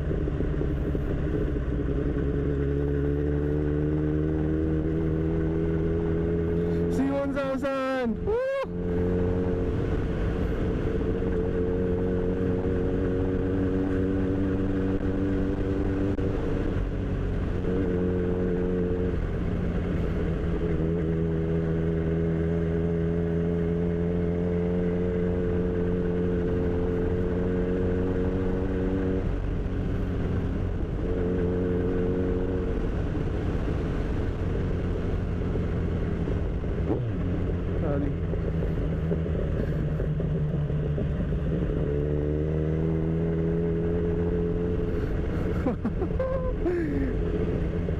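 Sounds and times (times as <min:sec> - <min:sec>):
wind rumble: 0:00.0 - 0:07.2
motorcycle engine running: 0:00.0 - 0:47.9.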